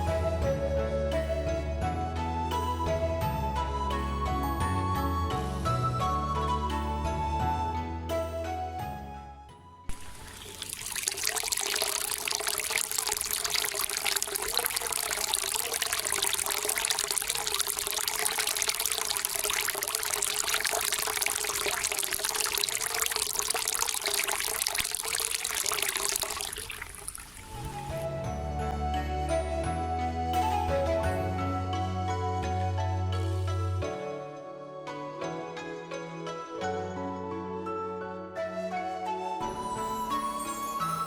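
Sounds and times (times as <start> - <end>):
water pouring into water: 9.9 - 28.1.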